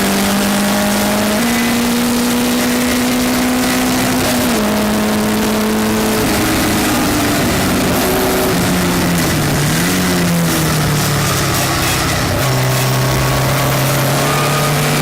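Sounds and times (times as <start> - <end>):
race car engine revs falling: 0.0 - 15.0.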